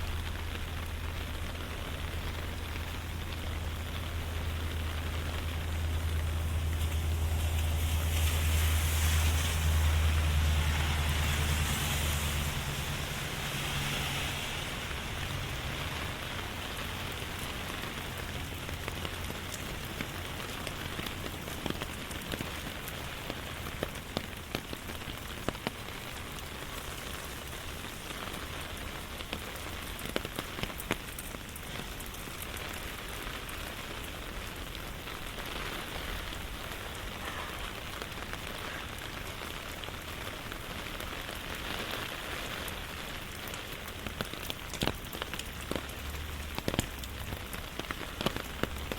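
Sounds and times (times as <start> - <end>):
low rumble: 0.0 - 20.3
raindrops ticking: 0.0 - 48.9
steady rain: 0.0 - 48.9.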